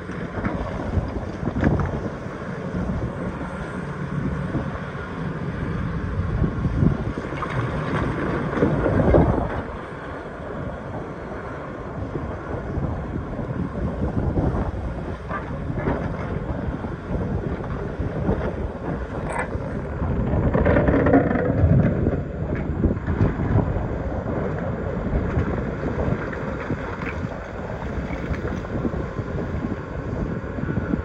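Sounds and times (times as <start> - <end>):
excavator engine under load: 0.0 - 31.0
bucket scraping rock: 20.2 - 22.1.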